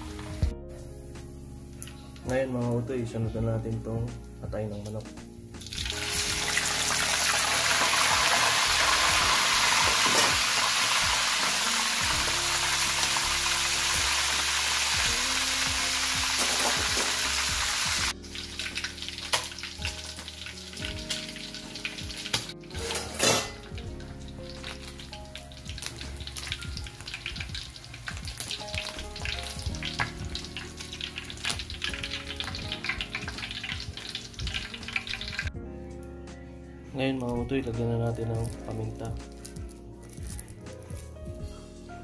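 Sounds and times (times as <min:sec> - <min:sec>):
oil crackling and popping: 0:01.8 - 0:02.4, 0:04.8 - 0:35.5, 0:38.0 - 0:41.3
food sizzling in hot oil: 0:05.5 - 0:35.5.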